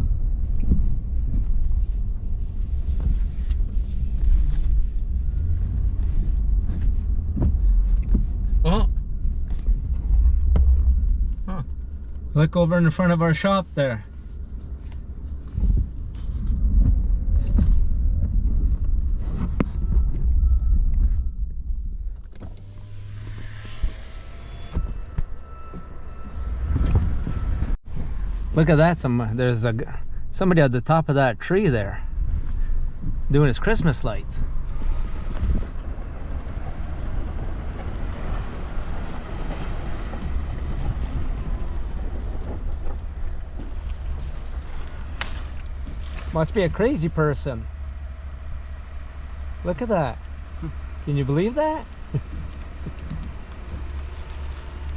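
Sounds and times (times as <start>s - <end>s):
engine and road rumble: 0.0s - 54.9s
motor whine: 22.0s - 27.8s.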